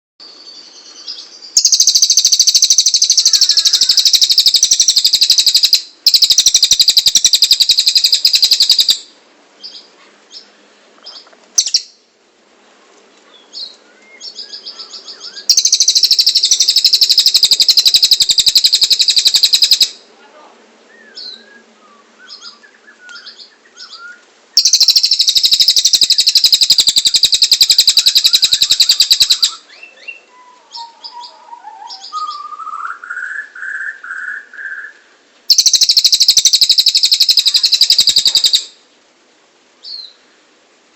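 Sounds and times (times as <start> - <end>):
bird singing rapid trills: 0.4 - 9.9, 11.6 - 12.0, 13.5 - 20.0, 24.6 - 32.8, 35.5 - 38.8
short bird chirps: 11.6 - 12.0.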